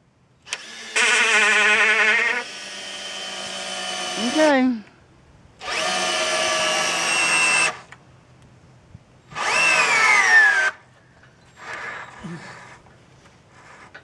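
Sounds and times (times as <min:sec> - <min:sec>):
power drill driving screws: 0:00.5 - 0:04.6, 0:05.6 - 0:08.0, 0:09.4 - 0:10.8, 0:11.6 - 0:12.2.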